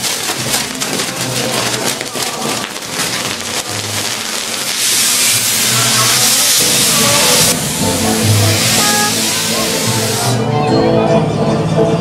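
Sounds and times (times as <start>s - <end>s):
fireworks crackling and hissing: 0.0s - 10.4s
steady rushing hiss of flare: 2.5s - 10.4s.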